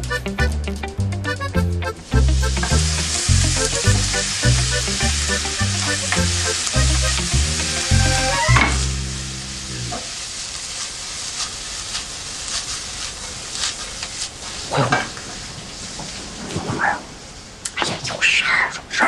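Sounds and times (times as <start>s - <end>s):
background music: 0.0s - 9.8s
food sizzling in a frying pan: 2.0s - 16.1s.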